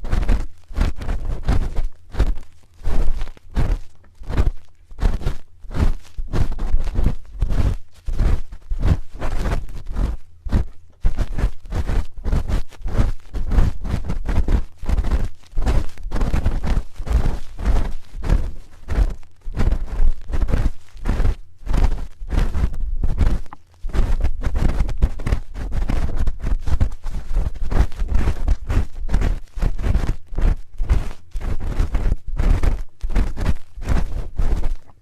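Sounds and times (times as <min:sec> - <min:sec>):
spoon scraping microphone: 0:00.0 - 0:30.2
dull thuds: 0:00.0 - 0:34.9.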